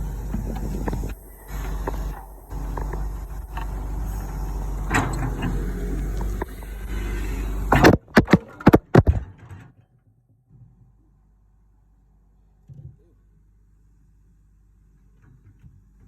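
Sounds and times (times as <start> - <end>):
excavator diesel engine running: 0.0 - 9.1
small scrapes and clicks: 0.2 - 9.2.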